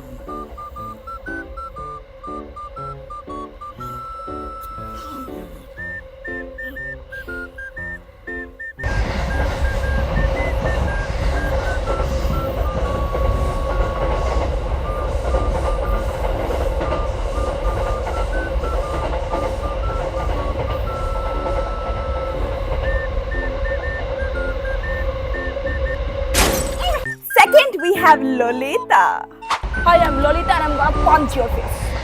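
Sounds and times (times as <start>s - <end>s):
background music melody: 0.0s - 31.9s
passenger train rumbling: 0.0s - 32.0s.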